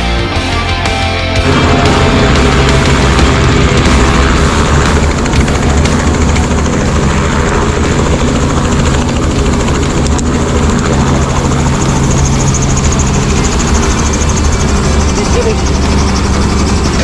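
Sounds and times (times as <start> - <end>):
helicopter flying: 0.0 - 17.0.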